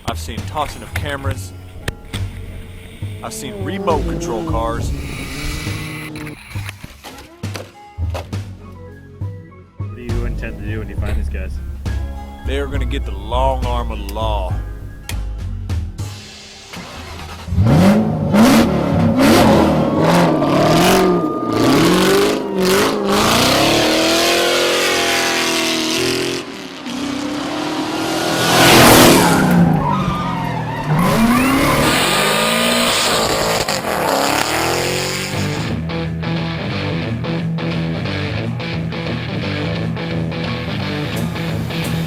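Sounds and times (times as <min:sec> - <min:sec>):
motorcycle engines revving: 0:00.0 - 0:07.0, 0:17.5 - 0:42.0
tyres screeching: 0:00.7 - 0:07.2, 0:28.4 - 0:35.4.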